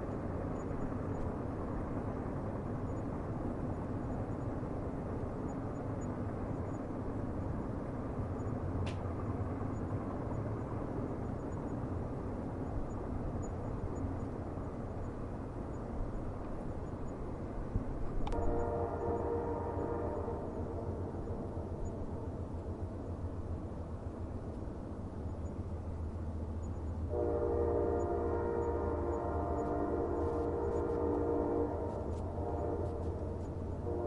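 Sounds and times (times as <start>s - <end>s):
distant train rumbling on rails: 0.0s - 34.0s
brief click: 8.8s - 9.1s, 18.2s - 18.5s.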